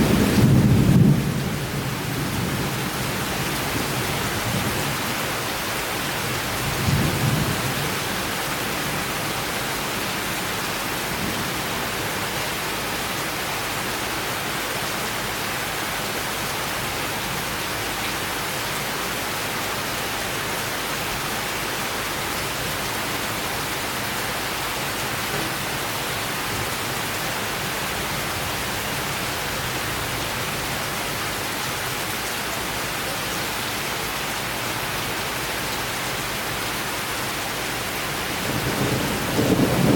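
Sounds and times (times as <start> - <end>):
low rumble of thunder: 0.0 - 5.2, 6.2 - 9.2, 38.2 - 39.9
steady rain falling: 0.0 - 39.9.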